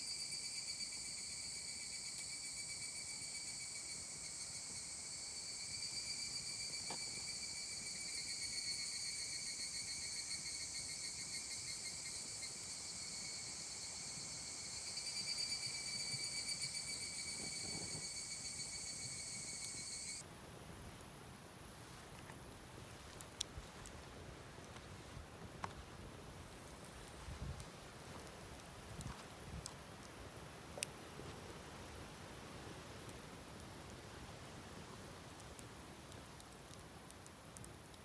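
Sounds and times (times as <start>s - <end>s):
insects chirping: 0.0s - 20.2s.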